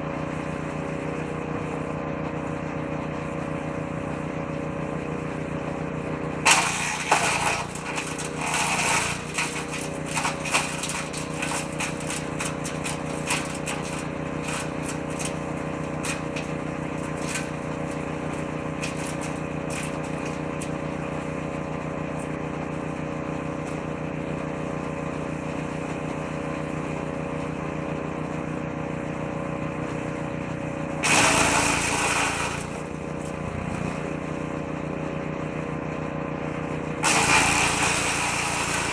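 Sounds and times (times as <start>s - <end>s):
woodchipper engine running: 0.0s - 38.9s
branches being shredded: 6.5s - 21.2s.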